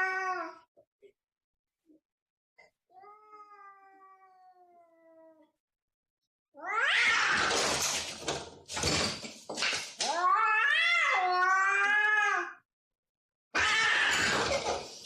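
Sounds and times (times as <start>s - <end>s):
cat meowing: 6.6s - 7.4s.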